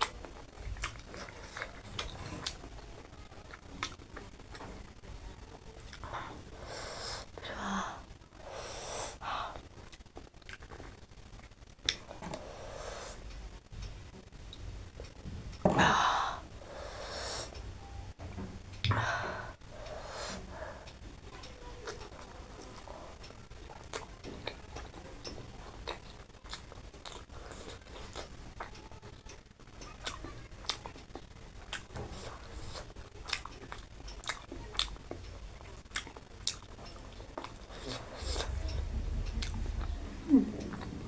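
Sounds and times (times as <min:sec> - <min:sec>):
chewing with wet mouth clicks: 0:00.0 - 0:02.8, 0:09.9 - 0:12.4, 0:21.8 - 0:28.7, 0:29.8 - 0:41.0
loud rushing noise: 0:38.1 - 0:41.0.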